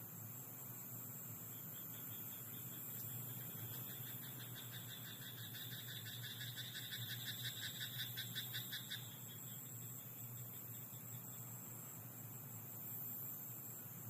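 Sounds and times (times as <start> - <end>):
frog croaking: 1.7 - 9.6.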